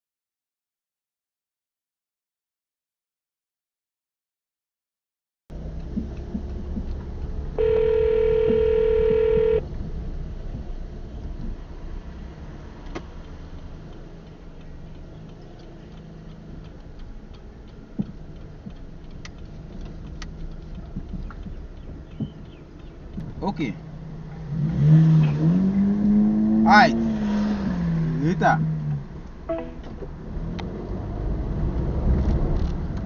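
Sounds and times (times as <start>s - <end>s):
continuous low rumble: 5.5s - 25.9s
loud steady beep tone: 7.6s - 9.6s, 29.5s - 29.9s.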